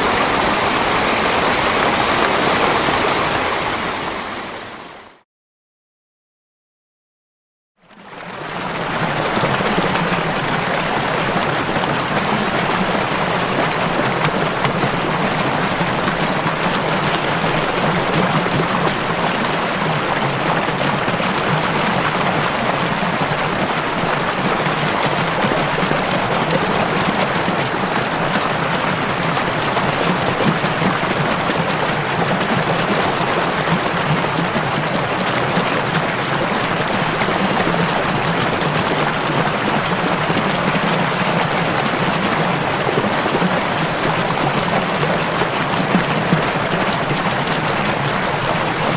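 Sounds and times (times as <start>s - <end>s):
stream water rushing: 0.0s - 5.2s, 8.1s - 48.9s.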